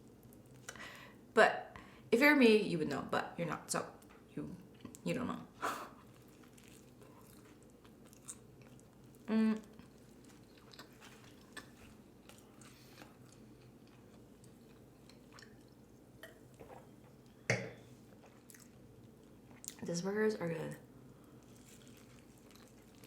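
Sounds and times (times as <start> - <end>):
person chewing close up: 6.0 - 16.6, 18.1 - 19.8, 21.2 - 23.0.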